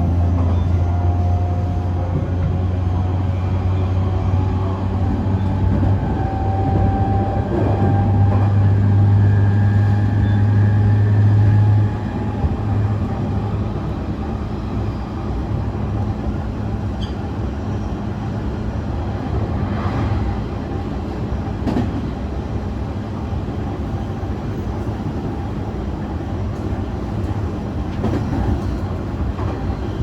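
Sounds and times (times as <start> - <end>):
electric train rolling and motor noise: 0.0 - 30.0.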